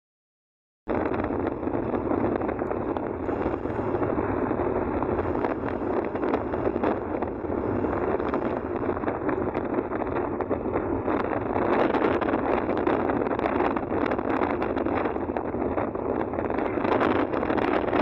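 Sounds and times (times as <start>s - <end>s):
wind buffeting microphone: 0.9s - 18.0s.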